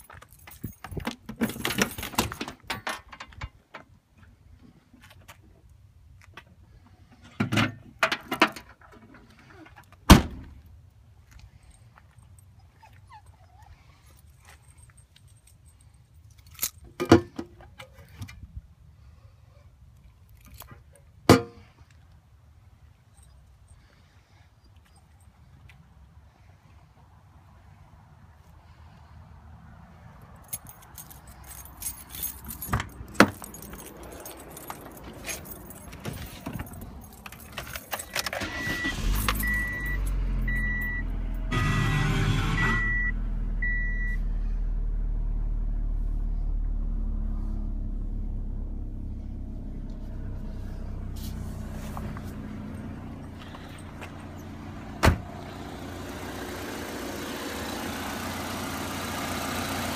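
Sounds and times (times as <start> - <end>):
keys jangling: 0.0 - 2.8, 14.1 - 16.9, 30.4 - 40.6
car engine starting and idling: 31.3 - 59.9
car warning chime beeping: 38.4 - 44.3.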